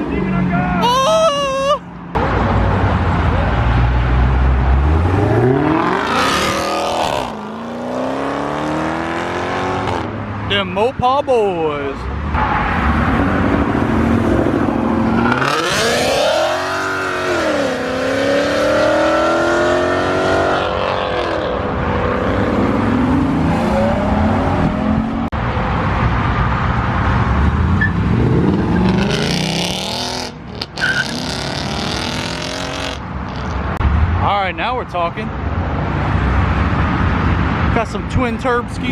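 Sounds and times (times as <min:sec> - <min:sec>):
car engines revving and accelerating: 0:02.0 - 0:10.6, 0:11.6 - 0:34.2.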